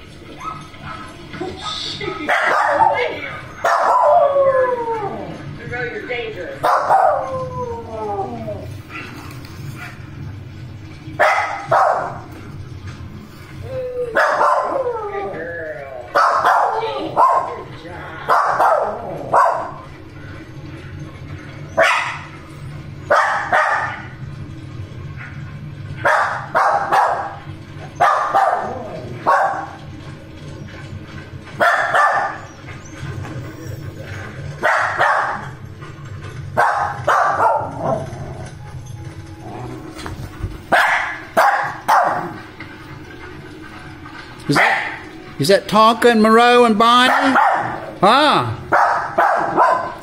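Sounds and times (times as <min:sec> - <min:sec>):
dog barking: 0:02.2 - 0:04.3, 0:06.6 - 0:07.2, 0:11.2 - 0:12.2, 0:14.1 - 0:14.8, 0:16.1 - 0:17.7, 0:18.3 - 0:19.8, 0:21.8 - 0:22.3, 0:23.1 - 0:24.1, 0:26.0 - 0:27.4, 0:28.0 - 0:29.8, 0:31.6 - 0:32.5, 0:34.6 - 0:35.6, 0:36.6 - 0:38.0, 0:40.7 - 0:42.4, 0:44.6 - 0:45.0, 0:47.1 - 0:47.8, 0:48.7 - 0:50.0.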